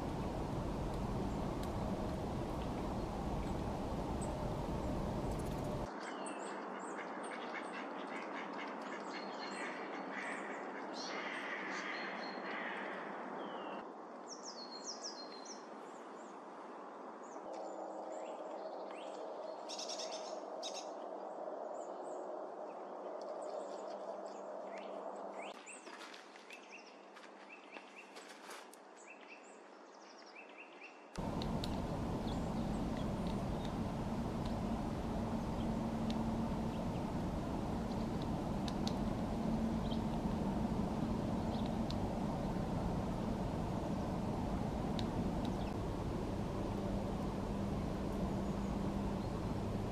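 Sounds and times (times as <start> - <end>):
even rush of noise: 0.0 - 5.9, 31.2 - 49.9
outdoor background noise: 0.0 - 49.9
bird calls and chirps: 30.3 - 49.9.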